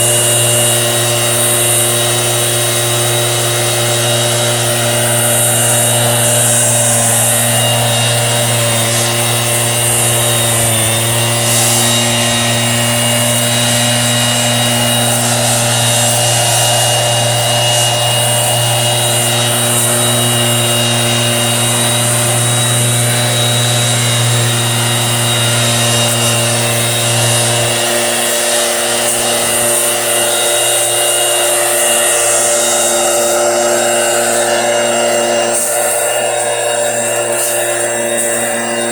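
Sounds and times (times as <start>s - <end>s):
sprayer motor humming and hissing: 0.0s - 38.9s.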